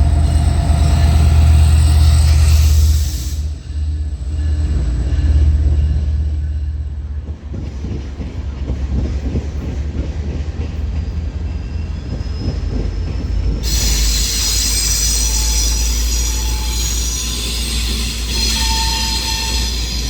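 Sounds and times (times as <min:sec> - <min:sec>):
train rumbling with wheel clatter: 0:00.0 - 0:20.0
metallic wheel squeal: 0:11.7 - 0:20.0.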